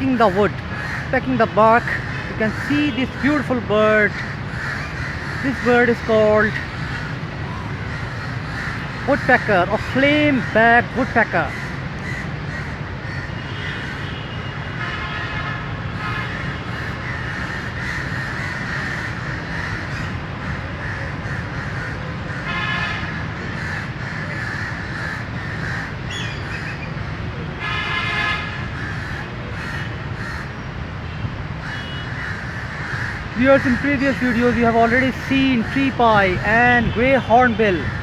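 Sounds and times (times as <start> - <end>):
crows cawing: 0.0 - 30.7, 31.5 - 38.0.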